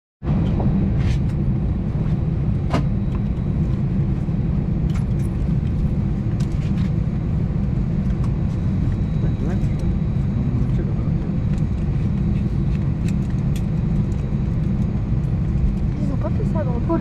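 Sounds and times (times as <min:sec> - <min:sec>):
airplane cabin rumble: 0:00.2 - 0:17.0.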